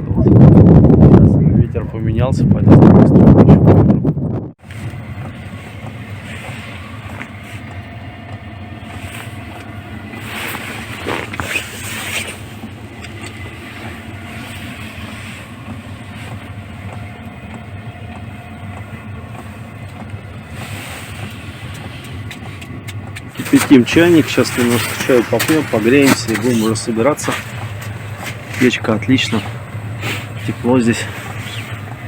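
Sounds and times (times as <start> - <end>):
heater fan humming: 4.6 - 32.0
rustling: 8.8 - 17.1, 19.4 - 32.0.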